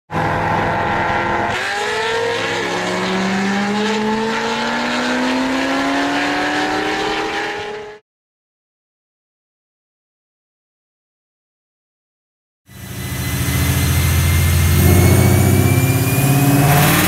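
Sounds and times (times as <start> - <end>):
car engines accelerating: 0.1 - 8.0, 12.7 - 17.0.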